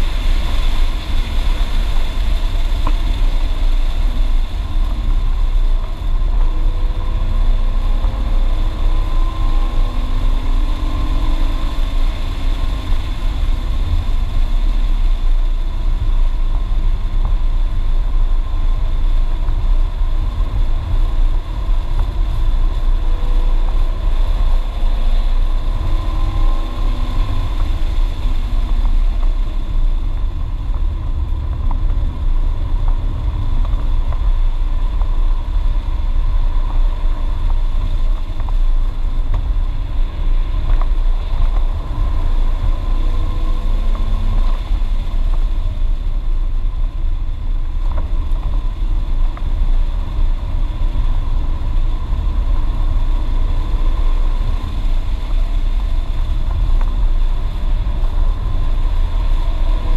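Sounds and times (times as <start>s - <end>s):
car engine rumble: 0.0s - 59.9s
road noise inside car: 0.0s - 59.9s.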